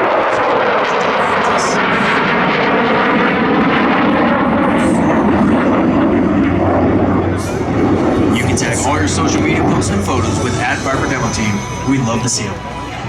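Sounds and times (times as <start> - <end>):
jet engine roaring: 0.0 - 13.0
public address announcer: 0.4 - 2.2, 7.1 - 13.0.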